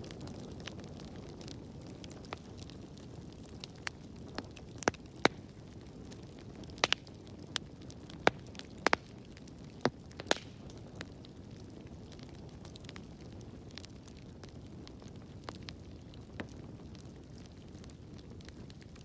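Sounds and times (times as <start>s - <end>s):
fire crackling and popping: 0.0s - 19.0s
low rumble of burning: 0.0s - 19.0s.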